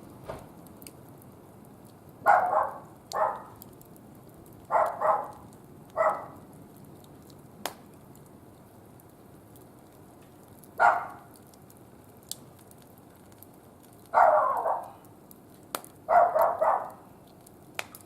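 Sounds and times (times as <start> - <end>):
sharp fire crack: 0.0 - 18.0
wood fire crackling: 0.0 - 18.0
dog barking: 2.2 - 3.6, 4.7 - 5.4, 6.0 - 6.4, 10.8 - 11.3, 14.1 - 15.0, 16.1 - 17.0.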